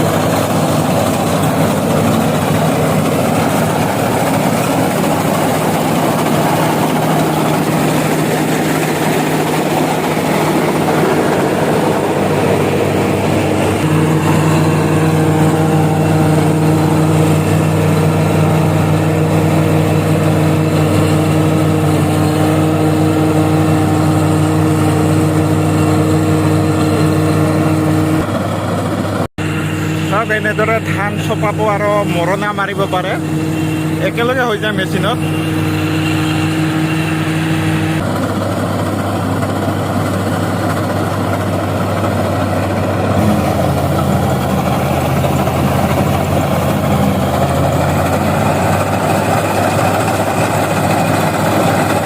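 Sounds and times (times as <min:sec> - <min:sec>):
combine harvester engine running: 0:00.0 - 0:52.0.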